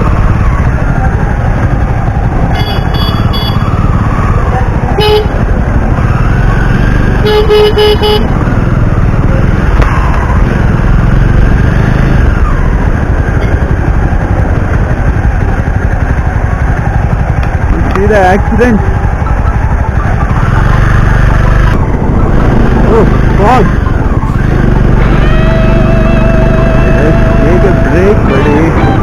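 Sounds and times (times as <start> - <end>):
motorcycle engine rumble: 0.0 - 29.0
wind: 0.0 - 29.0
vehicle horns honking: 2.5 - 3.7, 5.0 - 5.4, 7.2 - 8.4, 28.3 - 29.0.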